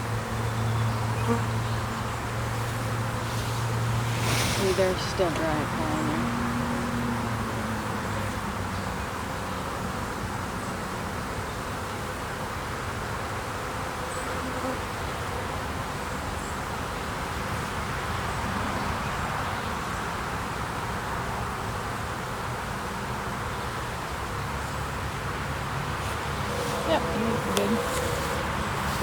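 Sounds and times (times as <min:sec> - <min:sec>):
bee swarm buzzing: 0:00.1 - 0:10.2, 0:25.0 - 0:29.0.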